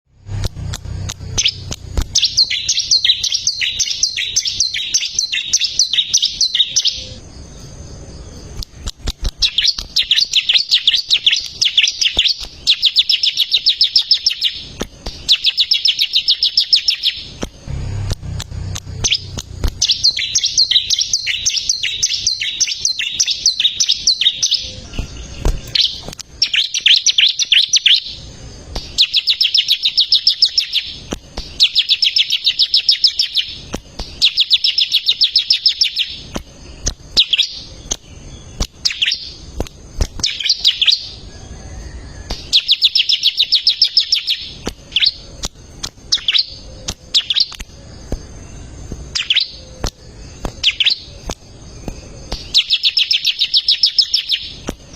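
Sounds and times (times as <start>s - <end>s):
low hum: 0.0s - 12.8s, 14.5s - 30.2s
bird singing chattering notes: 0.6s - 41.7s, 42.4s - 54.9s.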